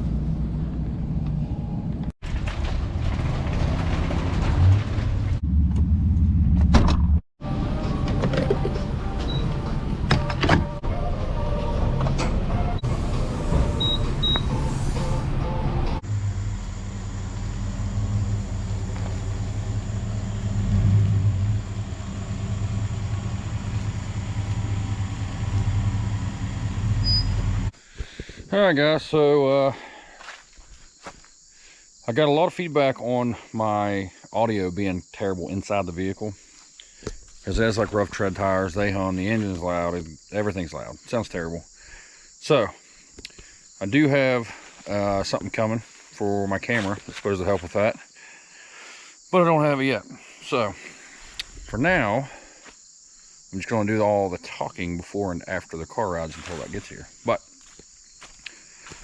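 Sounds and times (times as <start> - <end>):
tires humming on road: 0.0 - 27.8
engine drone: 3.0 - 27.7.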